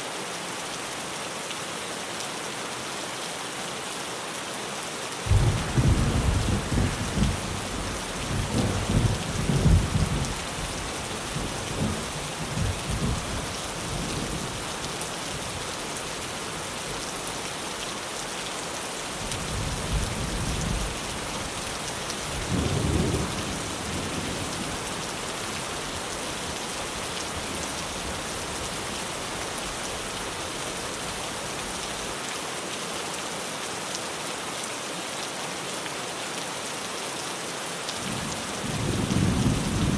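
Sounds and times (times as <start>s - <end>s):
heavy rain on a tin roof: 0.0s - 39.9s
thunder rumbling: 5.3s - 14.6s.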